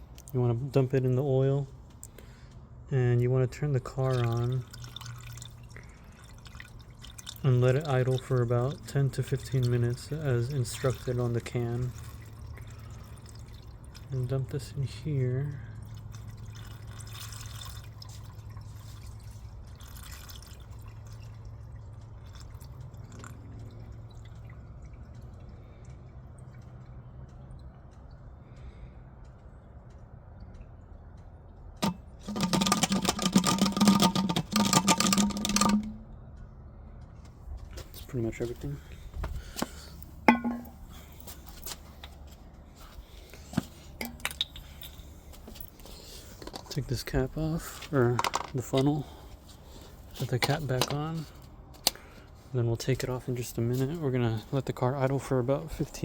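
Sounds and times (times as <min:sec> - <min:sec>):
liquid pouring and dripping: 0:03.8 - 0:28.3, 0:31.8 - 0:36.0, 0:39.4 - 0:42.0, 0:42.8 - 0:51.3
sharp ringing metal clink: 0:40.3 - 0:40.8.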